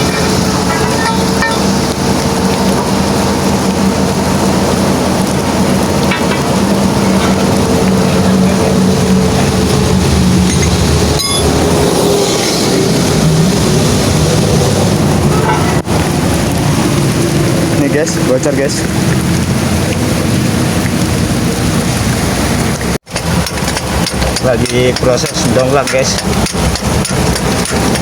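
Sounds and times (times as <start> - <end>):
diesel truck engine idling: 0.0 - 16.9
rain hiss: 0.0 - 28.0.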